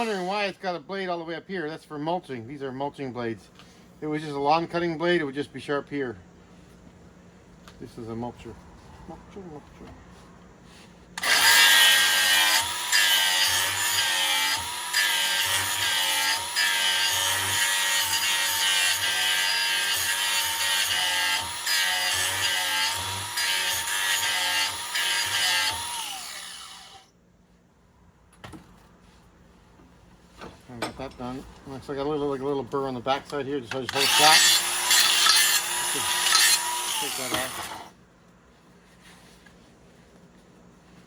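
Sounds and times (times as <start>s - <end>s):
electric grinder grinding steel: 0.0s - 0.5s, 11.2s - 27.0s, 33.9s - 37.9s
grinder motor winding down: 11.2s - 27.0s.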